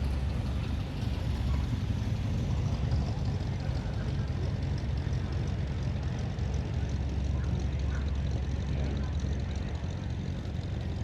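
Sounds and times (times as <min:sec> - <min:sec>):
car engines rumbling: 0:00.0 - 0:06.1.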